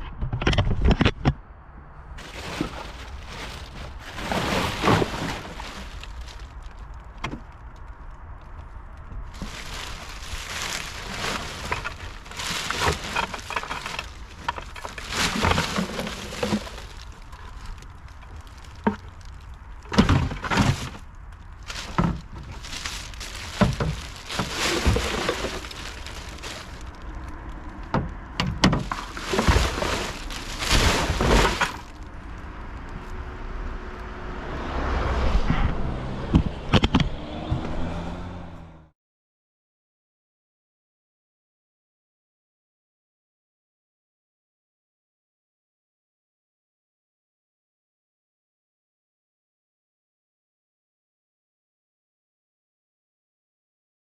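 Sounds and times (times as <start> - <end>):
cans bottles and plastic clattering: 2.2 - 6.6, 9.4 - 21.0, 21.6 - 32.0
trash rustling: 2.2 - 7.9, 8.5 - 32.4.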